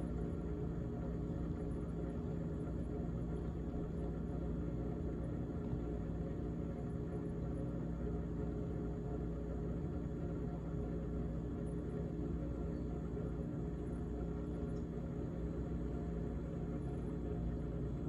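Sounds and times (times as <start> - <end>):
refrigerator humming: 0.0 - 18.0.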